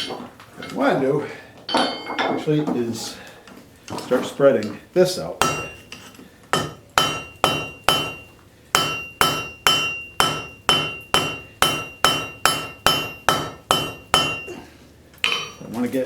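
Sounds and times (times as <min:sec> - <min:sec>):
hammer striking metal on anvil: 0:05.4 - 0:14.6.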